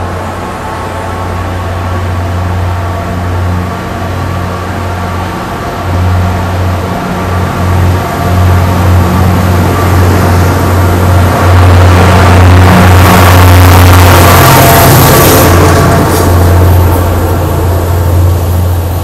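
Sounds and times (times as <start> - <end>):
diesel locomotive drone: 0.0 - 19.0.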